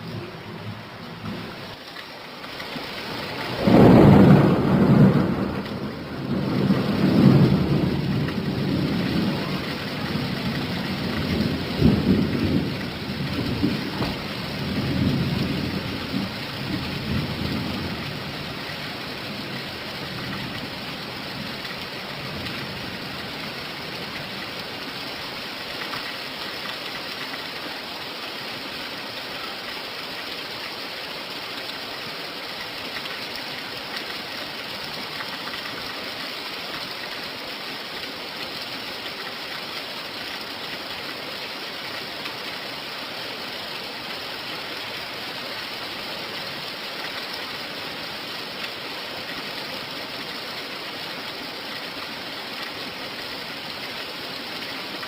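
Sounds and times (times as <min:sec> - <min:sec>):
steady rain: 0:00.0 - 0:55.0
thunder rumbling: 0:03.1 - 0:18.6.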